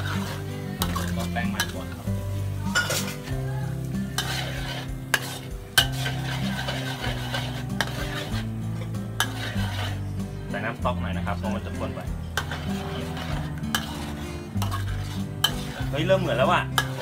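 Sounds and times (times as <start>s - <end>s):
ladle scraping a steel wok: 0.0s - 17.0s
sauce sizzling: 0.0s - 17.0s.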